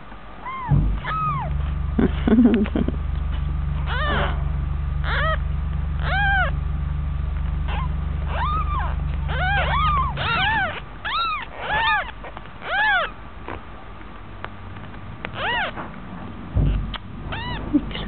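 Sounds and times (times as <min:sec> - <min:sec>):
steady low hum: 0:00.0 - 0:18.0
kittens mewing: 0:00.4 - 0:02.9, 0:03.8 - 0:05.4, 0:06.0 - 0:06.6, 0:07.6 - 0:13.6, 0:15.3 - 0:15.8, 0:16.6 - 0:18.0.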